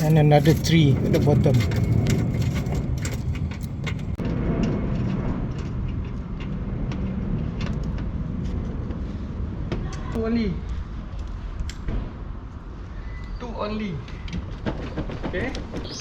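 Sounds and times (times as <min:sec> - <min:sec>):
hand tools clicking and tapping: 0:00.0 - 0:04.2
steady low rumble: 0:00.0 - 0:12.9.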